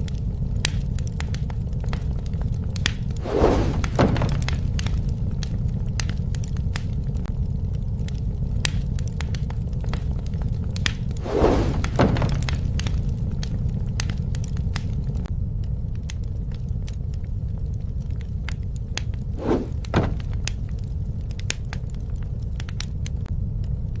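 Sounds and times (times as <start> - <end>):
wood fire crackling: 0.0 - 24.0
falling whoosh: 3.2 - 4.2, 11.2 - 12.2, 19.4 - 20.3.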